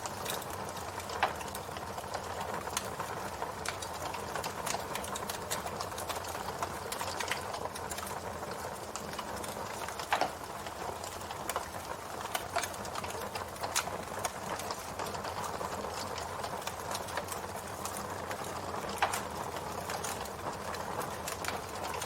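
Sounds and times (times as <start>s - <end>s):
campfire crackling and popping: 0.0s - 22.0s.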